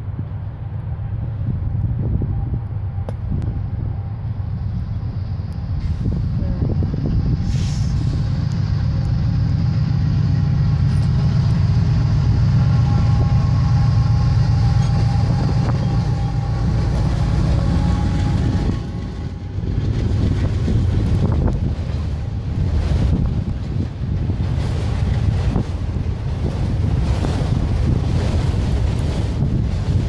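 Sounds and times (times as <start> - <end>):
locomotive engine rumble: 0.0 - 30.0
rail cars rolling: 0.0 - 30.0.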